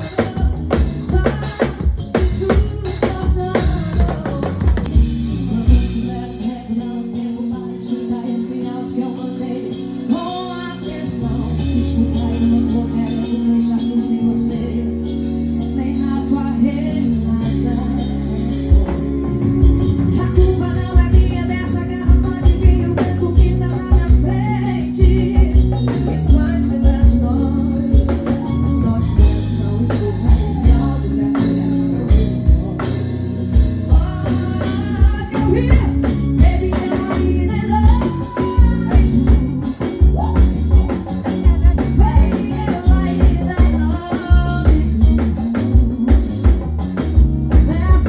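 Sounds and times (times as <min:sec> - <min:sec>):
bass line: 0:00.0 - 0:48.0
live band music: 0:00.0 - 0:48.0
woman singing: 0:00.0 - 0:48.0.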